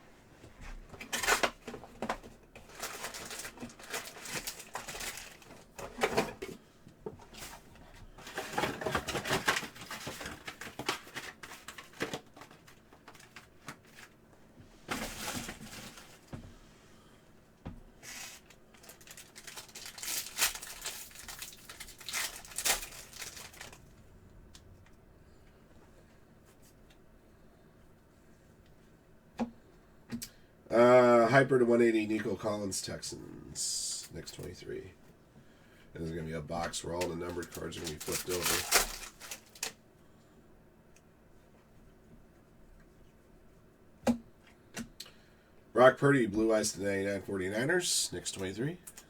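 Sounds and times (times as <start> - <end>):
card pack wrapper tearing and crinkling: 18.1 - 23.9, 36.9 - 39.8.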